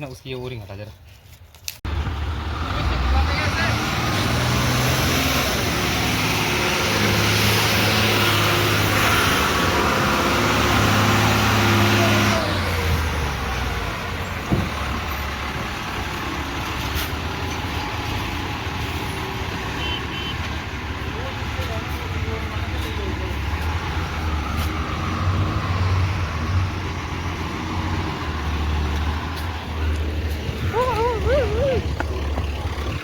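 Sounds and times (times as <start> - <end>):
heavy diesel engine running: 1.9 - 33.0.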